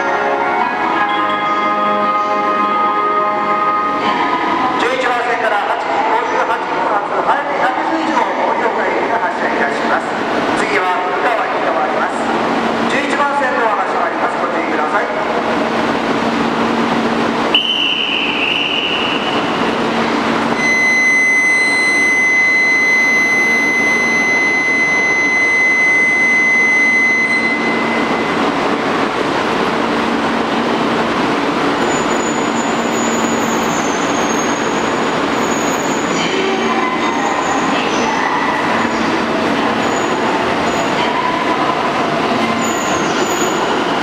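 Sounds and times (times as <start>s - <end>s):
hum of standing train: 0.0s - 44.0s
train running noise: 0.0s - 44.0s
steady high electronic tone: 17.6s - 28.9s
high motor whine: 17.7s - 30.6s.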